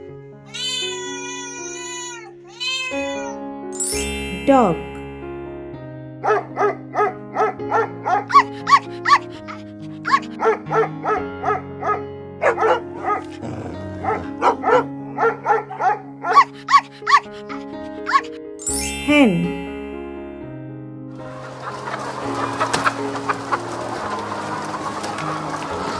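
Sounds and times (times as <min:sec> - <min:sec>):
light background music: 0:00.0 - 0:25.9
dog barking: 0:06.2 - 0:18.3.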